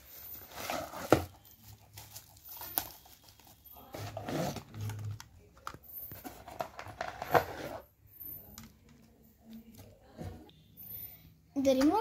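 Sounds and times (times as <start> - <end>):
packaging rustling: 0.0 - 5.3.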